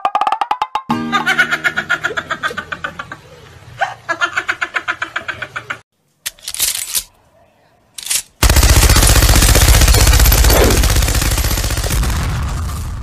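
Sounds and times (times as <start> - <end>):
machine gun rapid burst: 8.4 - 12.2.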